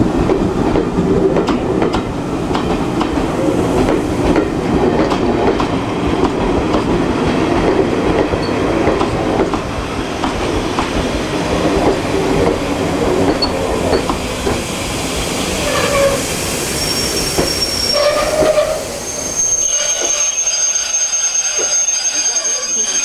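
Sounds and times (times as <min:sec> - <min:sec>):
train wheels clattering over rail joints: 0:00.2 - 0:14.8
wheel squeals: 0:15.6 - 0:16.2, 0:16.8 - 0:23.0.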